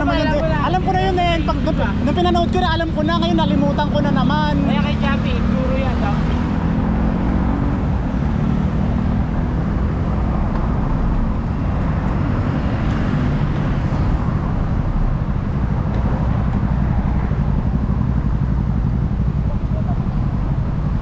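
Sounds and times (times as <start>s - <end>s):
faint engine hum: 0.0s - 21.0s
road traffic rumble: 0.0s - 21.0s.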